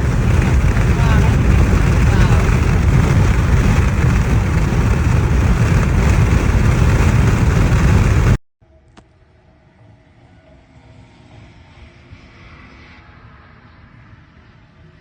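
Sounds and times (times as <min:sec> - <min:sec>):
storm wind buffeting microphone: 0:00.0 - 0:08.4.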